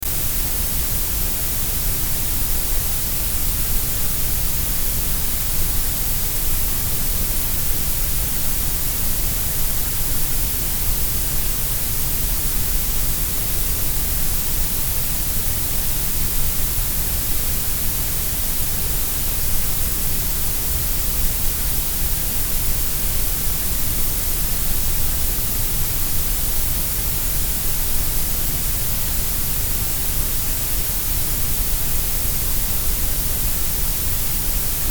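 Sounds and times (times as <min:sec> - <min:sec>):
steady grey noise hiss: 0:00.0 - 0:34.9.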